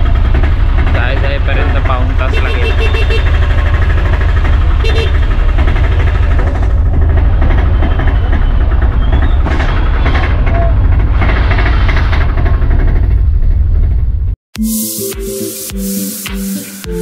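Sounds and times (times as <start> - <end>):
auto-rickshaw engine rumbling: 0.0 - 14.4
music: 14.6 - 17.0.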